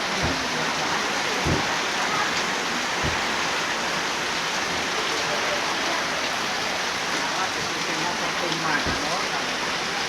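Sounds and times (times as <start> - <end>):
steady rain falling: 0.0 - 10.0
soft low thud: 1.4 - 1.8, 3.0 - 3.4.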